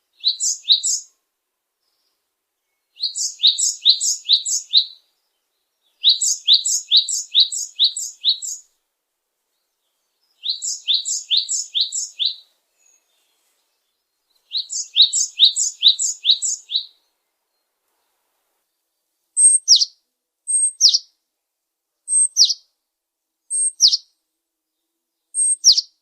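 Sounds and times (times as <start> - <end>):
songbird singing high notes: 0.1 - 1.1, 3.0 - 5.0, 5.9 - 8.6, 10.4 - 13.0, 14.4 - 17.0, 19.4 - 21.1, 22.1 - 22.6, 23.5 - 24.1, 25.3 - 26.0.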